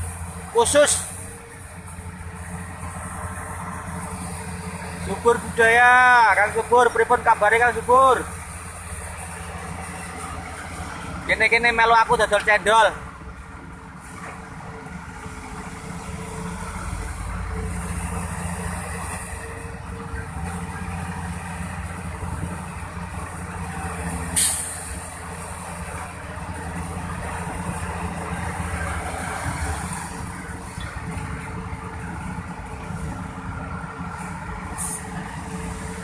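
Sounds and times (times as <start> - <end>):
heavy diesel engine running: 0.0 - 36.0
short sharp hiss: 24.4 - 24.9.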